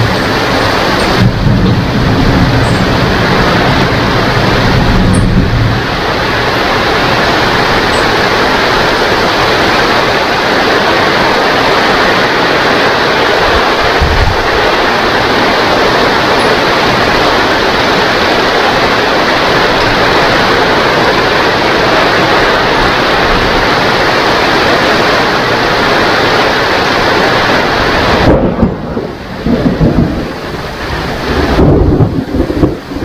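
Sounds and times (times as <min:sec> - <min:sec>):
low thunder rumble: 0:00.0 - 0:09.7, 0:13.4 - 0:23.9, 0:28.0 - 0:33.0
heavy rain: 0:00.0 - 0:33.0.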